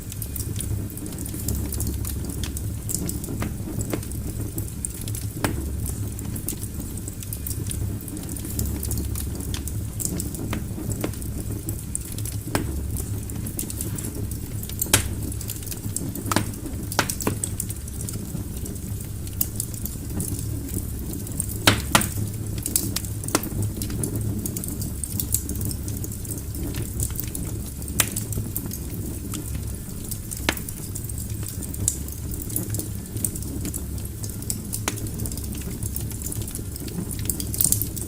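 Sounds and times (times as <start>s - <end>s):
low rumble of fire flames: 0.0s - 38.0s
wood fire crackling and popping: 0.0s - 38.0s.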